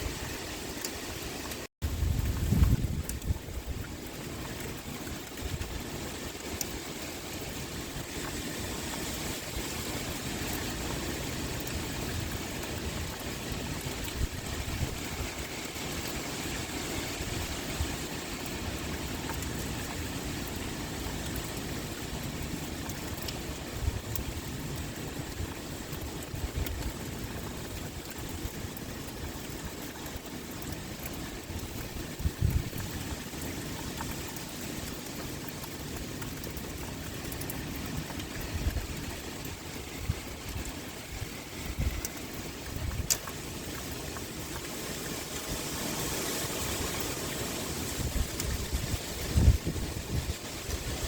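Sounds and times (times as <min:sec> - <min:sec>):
rain with wind: 0:00.0 - 0:51.0.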